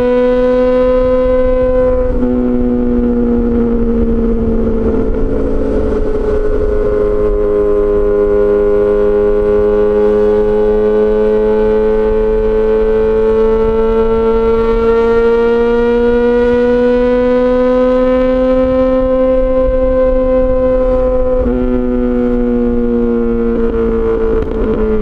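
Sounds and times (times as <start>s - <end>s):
motorcycle engine at high revs: 0.0s - 25.0s
rush of noise: 1.0s - 10.5s.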